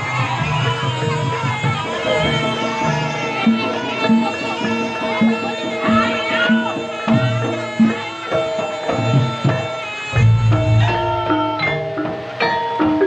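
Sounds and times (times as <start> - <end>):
hand drum strokes: 0.0 - 13.0
ringing tuned metal percussion: 0.0 - 13.0.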